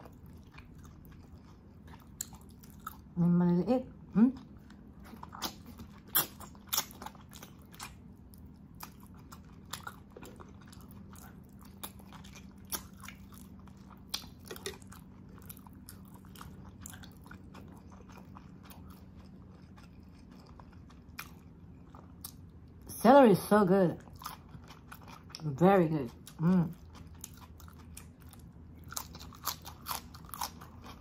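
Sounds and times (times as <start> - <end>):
chewing and lip smacking: 0.0 - 3.2, 4.4 - 22.6, 24.0 - 25.4, 26.1 - 31.0
faint steady hum: 0.0 - 31.0.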